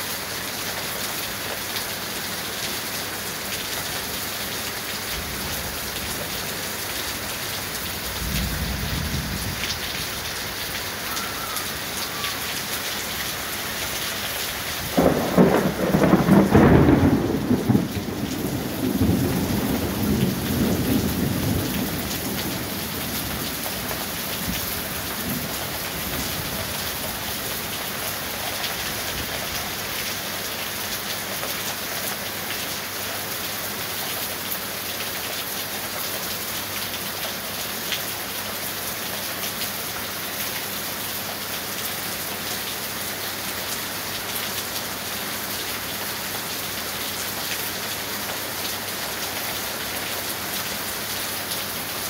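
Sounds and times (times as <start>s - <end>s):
heavy rain on street: 0.0s - 52.0s
thunder rumble: 8.0s - 10.4s, 14.8s - 27.0s.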